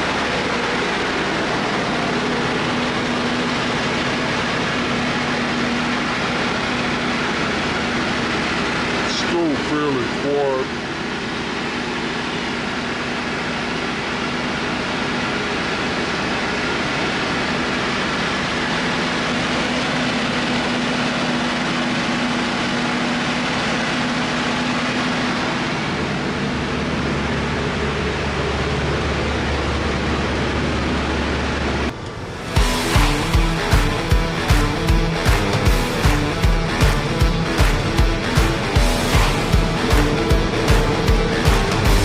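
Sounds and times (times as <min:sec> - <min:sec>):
helicopter engine running: 0:00.0 - 0:42.0
deep low hum: 0:20.2 - 0:42.0.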